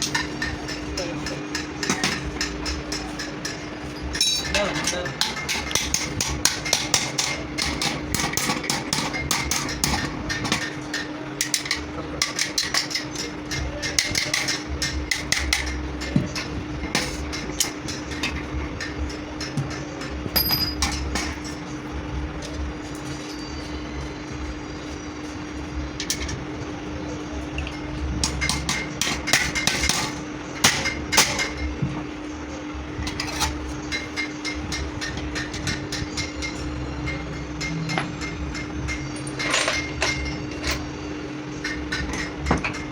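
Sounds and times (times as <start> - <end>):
steady low hum: 0.0 - 42.9
hammer tapping on metal: 33.9 - 40.8.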